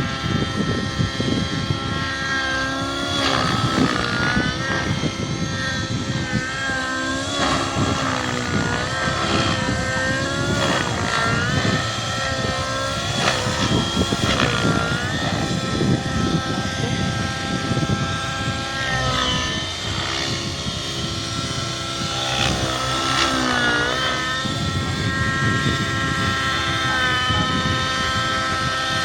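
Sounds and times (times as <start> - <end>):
model helicopter rotor whine: 0.0 - 29.0.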